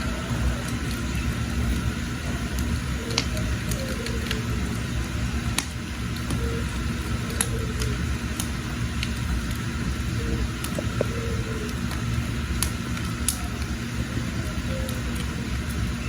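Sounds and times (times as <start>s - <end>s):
fire low rumble: 0.0s - 16.0s
firewood crackling and popping: 0.0s - 16.0s.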